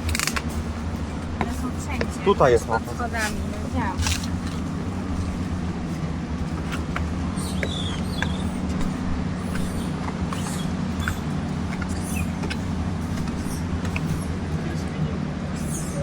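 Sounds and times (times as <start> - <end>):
engine humming: 0.0 - 16.0
high chirps and clicks: 7.0 - 8.8.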